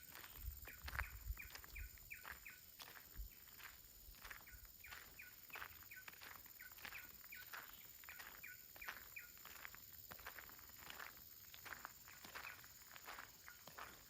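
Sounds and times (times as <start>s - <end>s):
bird chirping: 0.0s - 9.4s
footsteps on a path: 0.0s - 14.0s.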